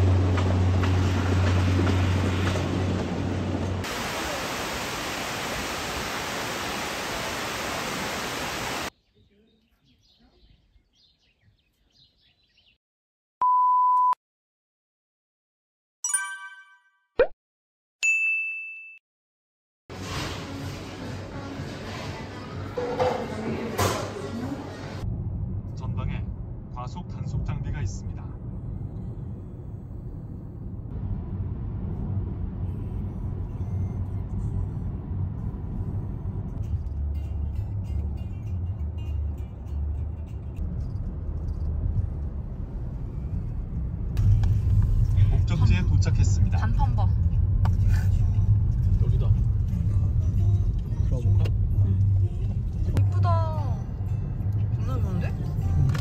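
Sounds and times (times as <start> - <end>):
bell ding: 16.0 - 17.0, 18.0 - 19.0
chime: 16.1 - 17.0
car driving low rumble: 24.9 - 56.0.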